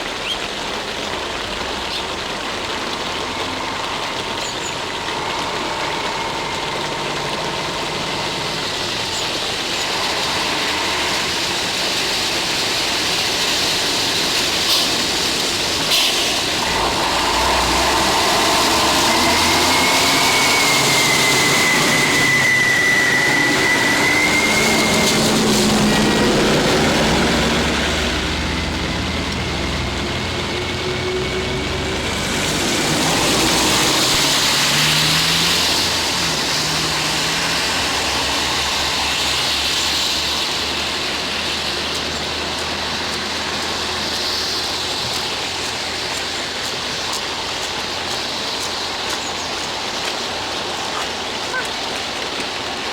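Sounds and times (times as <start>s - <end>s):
noisy rumble: 0.0s - 52.9s
vehicle engine running: 0.6s - 52.9s
thin wavering high tone: 3.8s - 12.6s, 16.6s - 28.4s.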